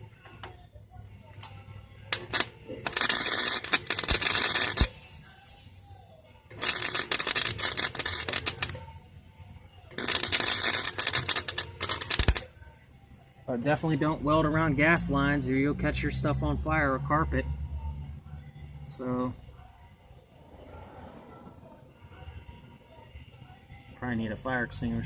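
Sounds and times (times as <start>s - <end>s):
welding arc crackling: 2.1s - 9.2s, 9.9s - 12.5s
sharp clicks: 10.0s - 12.4s.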